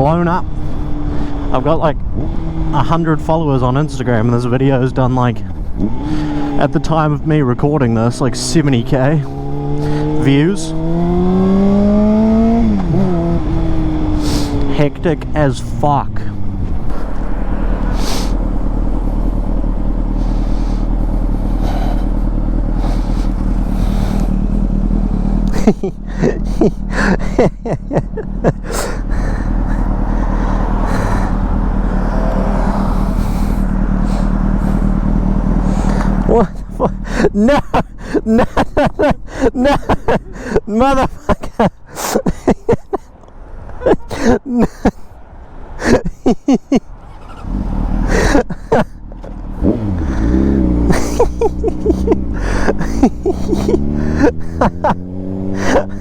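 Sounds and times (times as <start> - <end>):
motorcycle engine: 0.0 - 56.0.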